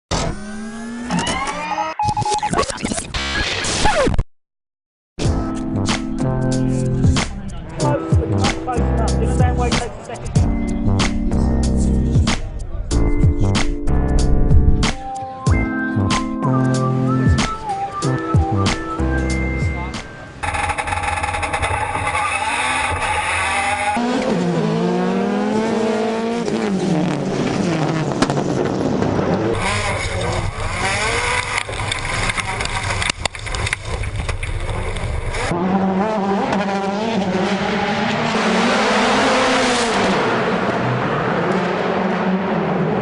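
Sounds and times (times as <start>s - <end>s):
race car engines revving: 20.0s - 43.0s
tyre squeal: 20.4s - 24.0s.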